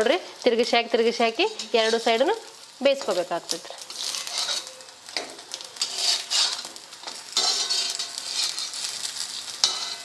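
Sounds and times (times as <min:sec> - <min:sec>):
oil sizzling in a pan: 0:00.0 - 0:10.0
spatula scraping and knocking pan: 0:03.8 - 0:10.0.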